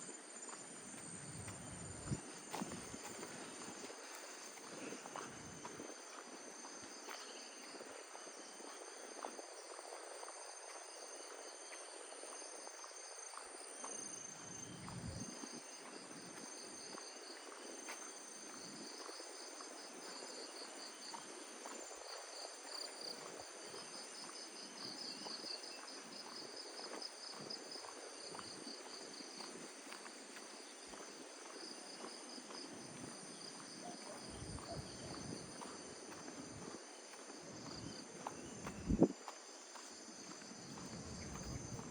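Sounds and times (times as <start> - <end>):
footsteps on a path: 0.0 - 41.9
insects calling: 18.4 - 41.9.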